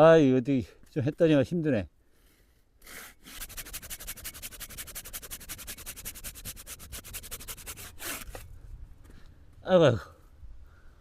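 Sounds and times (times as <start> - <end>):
hand saw cutting log: 2.8 - 8.4.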